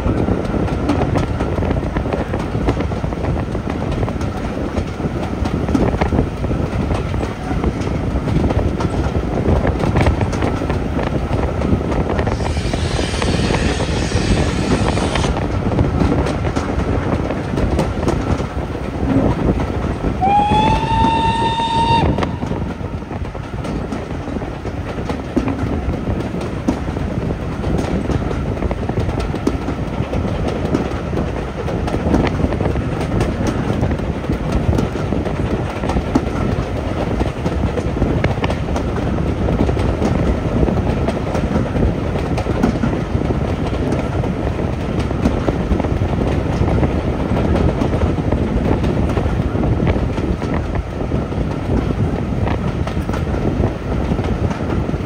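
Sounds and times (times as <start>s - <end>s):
steam train running: 0.0s - 55.0s
wheels clicking over rail joints: 23.1s - 55.0s.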